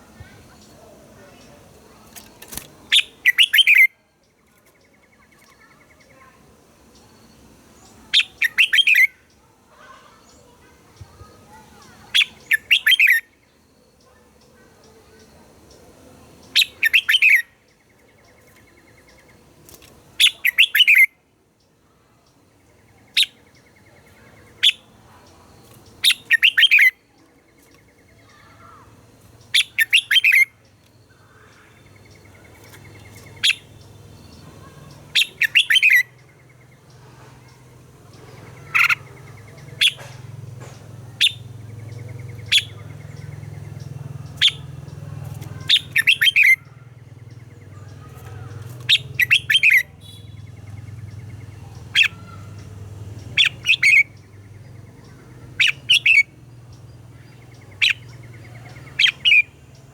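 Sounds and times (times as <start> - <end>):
steady low hum: 30.5 - 59.9
bulbul singing bubbly phrases: 48.8 - 59.9.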